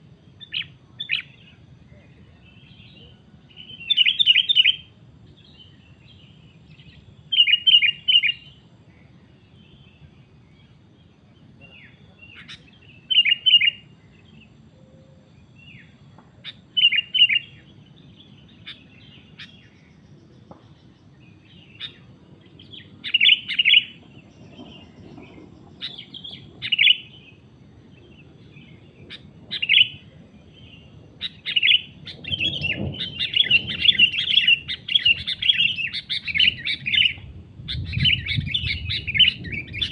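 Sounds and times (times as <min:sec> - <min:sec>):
bulbuls chattering: 0:11.1 - 0:14.0, 0:31.3 - 0:37.2.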